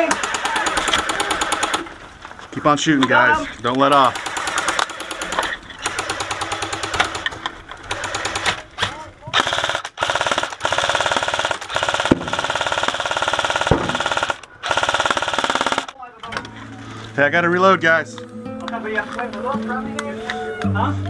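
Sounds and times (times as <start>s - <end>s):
electric rifles firing full auto: 0.0s - 2.0s, 3.8s - 16.0s.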